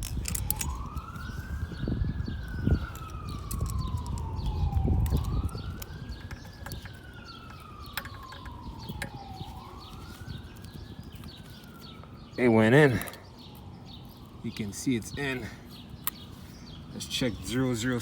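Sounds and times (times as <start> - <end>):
siren wailing: 0.1 - 18.0
hand tools clicking and tapping: 2.9 - 9.2.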